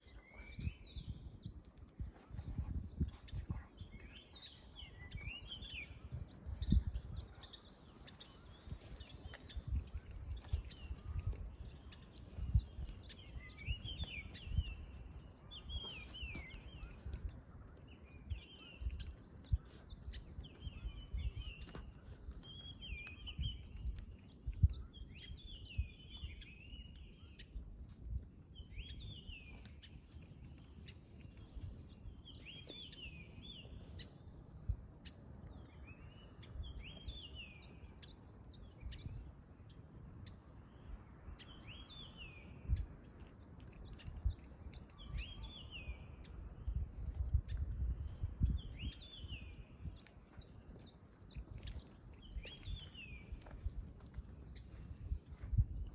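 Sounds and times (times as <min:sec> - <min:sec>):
bird singing: 0:00.0 - 0:28.0, 0:28.6 - 0:55.9
campfire crackling: 0:07.0 - 0:55.9.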